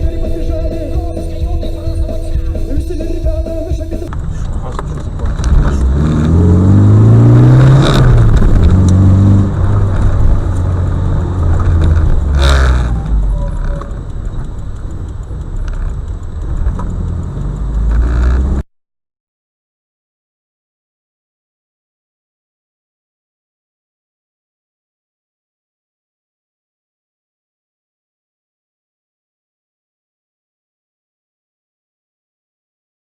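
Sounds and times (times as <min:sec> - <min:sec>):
vehicle engine revving: 0:00.0 - 0:18.6.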